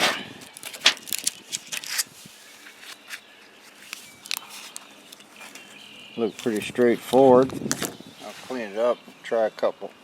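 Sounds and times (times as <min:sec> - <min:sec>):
packaging rustling: 0:00.4 - 0:08.0.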